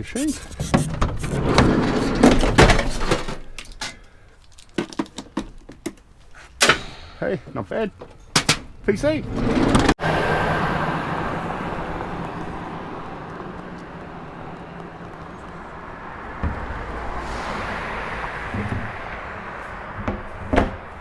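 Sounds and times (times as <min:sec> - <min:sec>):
passing vehicle: 0:08.8 - 0:21.0
thump: 0:16.4 - 0:17.4, 0:18.4 - 0:19.2, 0:20.0 - 0:20.9.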